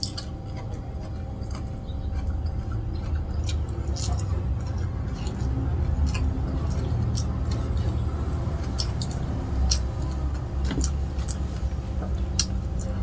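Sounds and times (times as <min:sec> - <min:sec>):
chewing crispy food: 0:00.0 - 0:13.0
low steady hum: 0:00.0 - 0:13.0
mouth clicks and wet smacks: 0:12.1 - 0:13.0.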